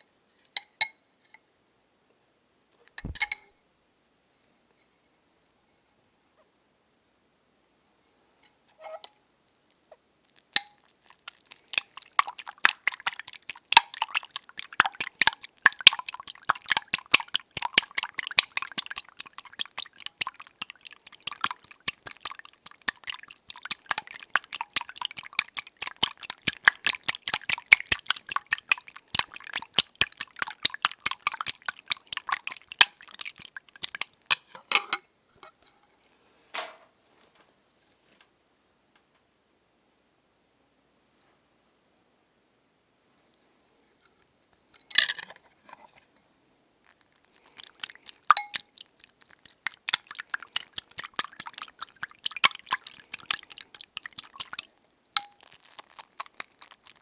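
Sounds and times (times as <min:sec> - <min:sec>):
eggs beaten in a bowl: 0:03.1 - 0:03.3, 0:10.4 - 0:34.5, 0:47.3 - 0:57.0.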